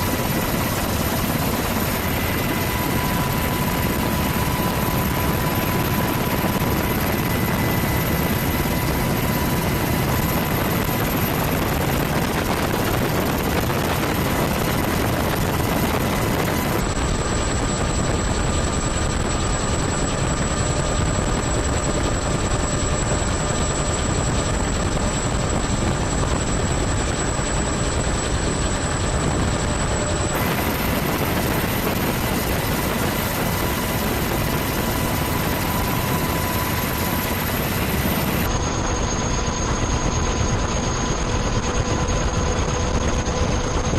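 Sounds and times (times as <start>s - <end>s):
faint steady whine: 0.0s - 16.9s, 28.8s - 43.9s
aircraft engine rush: 0.0s - 43.9s.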